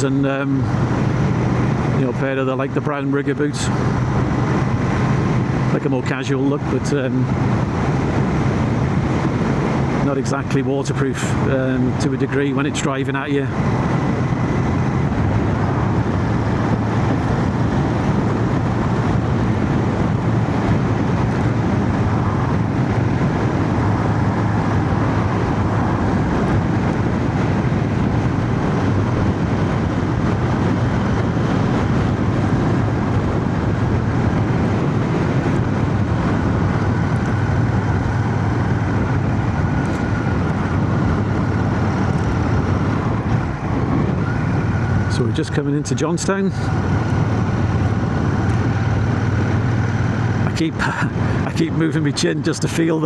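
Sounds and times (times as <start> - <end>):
wind and road noise: 0.0 - 53.0
motorcycle engine running: 10.6 - 45.2, 46.1 - 52.2.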